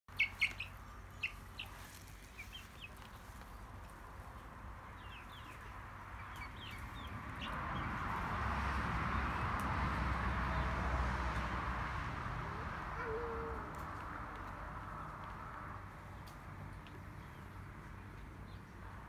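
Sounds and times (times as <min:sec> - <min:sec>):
birds chirping: 0:00.1 - 0:08.3
faint outdoor background noise: 0:00.1 - 0:19.0.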